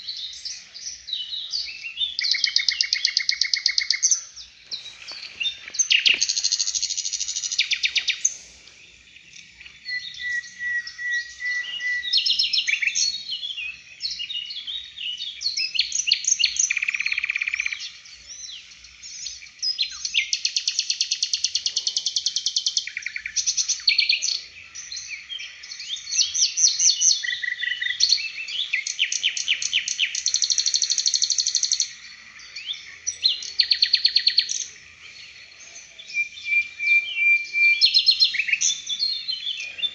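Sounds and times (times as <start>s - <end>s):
songbird singing rapid trills: 0.0s - 39.9s.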